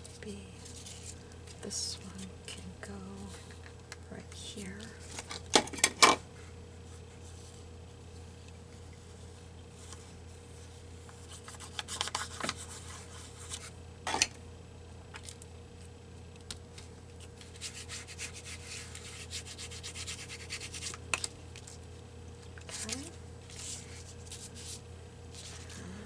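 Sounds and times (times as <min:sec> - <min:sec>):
scratchy rubbing on paper: 0:17.5 - 0:20.9.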